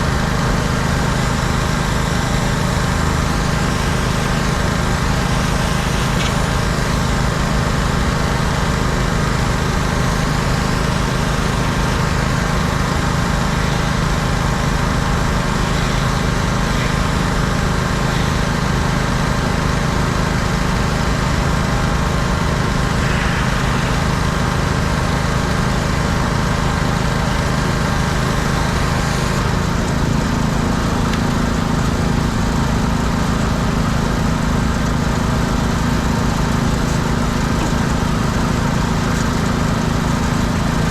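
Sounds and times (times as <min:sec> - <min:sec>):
pressure washer engine running: 0:00.0 - 0:40.9
hiss of water spray: 0:00.6 - 0:27.0.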